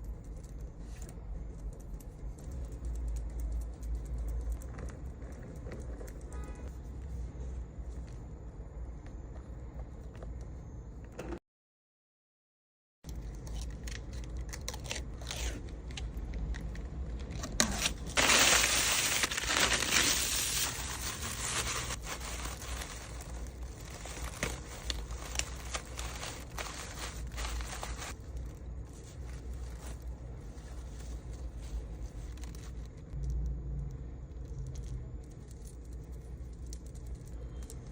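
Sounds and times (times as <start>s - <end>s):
packaging tearing: 17.4s - 28.2s
packaging rustling and crinkling: 17.4s - 33.0s.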